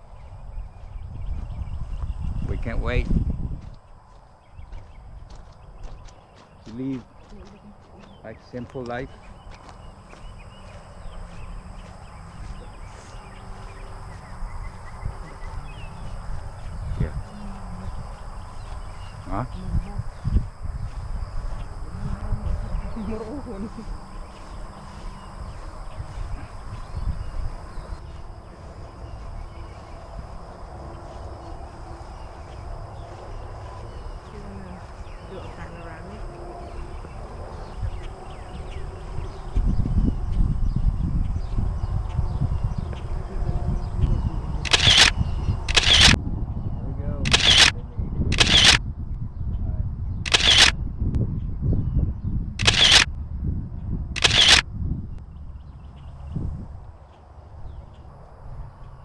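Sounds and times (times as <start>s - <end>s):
birds chirping: 0.0s - 48.8s, 49.4s - 50.7s, 51.8s - 53.1s, 54.2s - 54.6s
high-pitched insect hum: 0.0s - 59.0s
wind rumble on microphone: 0.0s - 59.0s
camera shutter click: 44.7s - 46.2s, 47.3s - 48.8s, 50.3s - 50.8s, 52.6s - 53.1s, 54.2s - 54.6s.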